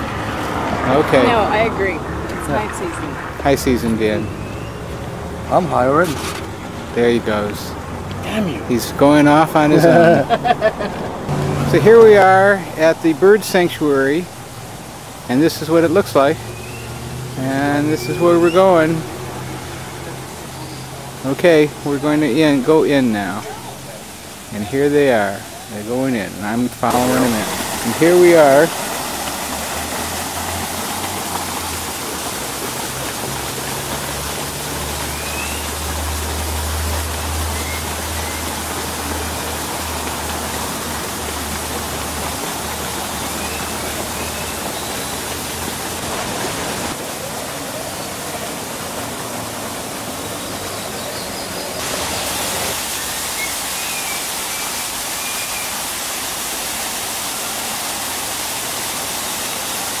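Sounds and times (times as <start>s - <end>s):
steady rushing noise: 9.5s - 34.6s.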